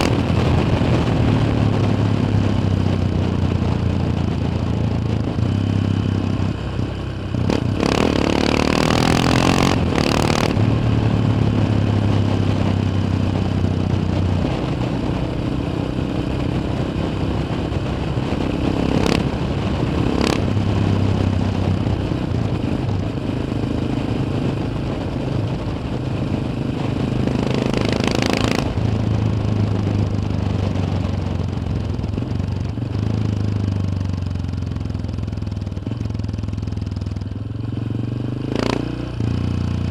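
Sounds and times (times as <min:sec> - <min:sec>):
motorcycle engine running: 0:00.0 - 0:39.9
clatter: 0:27.4 - 0:28.9.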